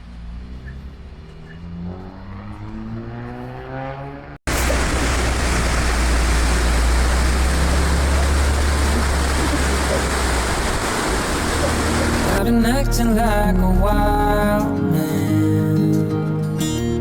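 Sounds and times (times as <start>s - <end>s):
engine rising in pitch: 0.0s - 14.6s
rushing noise with deep rumble: 4.4s - 12.5s.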